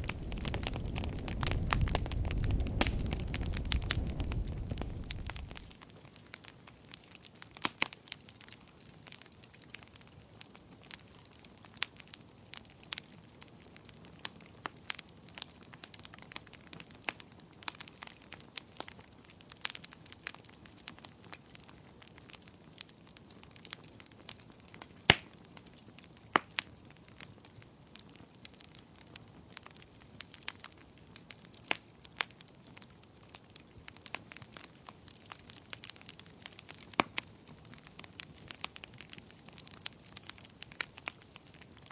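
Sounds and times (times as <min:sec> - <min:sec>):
faint low hiss: 0:00.0 - 0:06.0
wood fire crackling and popping: 0:00.0 - 0:41.9.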